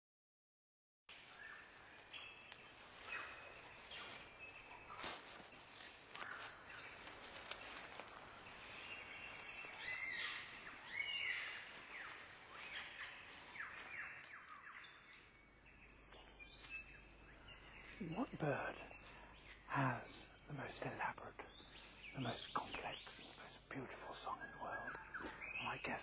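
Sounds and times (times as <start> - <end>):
birds chirping and whistling: 1.4 - 26.0
faint steady hiss: 15.9 - 26.0.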